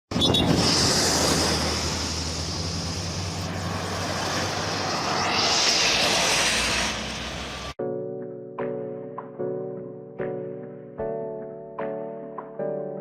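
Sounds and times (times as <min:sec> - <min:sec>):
hiss: 0:00.4 - 0:07.8
large engine running: 0:00.5 - 0:07.7.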